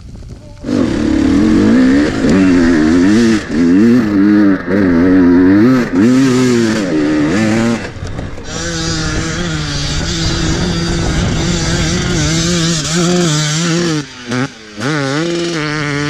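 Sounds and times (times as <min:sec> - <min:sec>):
dirt bike engine revving: 0:00.6 - 0:16.0.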